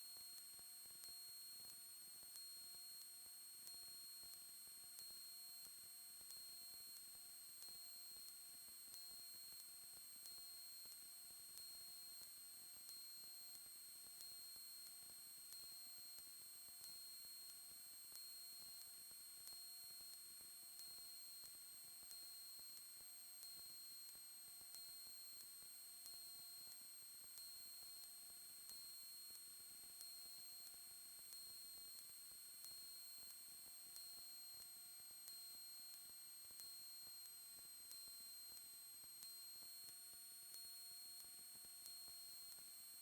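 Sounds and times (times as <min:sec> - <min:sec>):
soft ticks: 0:25.4 - 0:29.4, 0:30.0 - 0:42.6.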